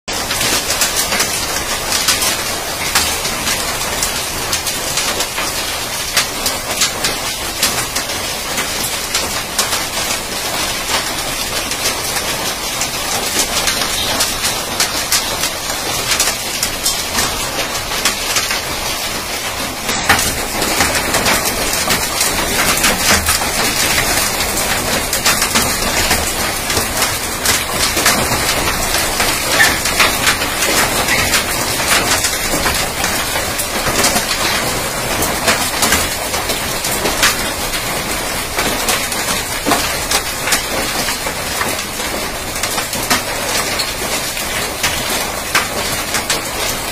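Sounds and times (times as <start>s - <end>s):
heavy hail falling: 0.1s - 46.9s.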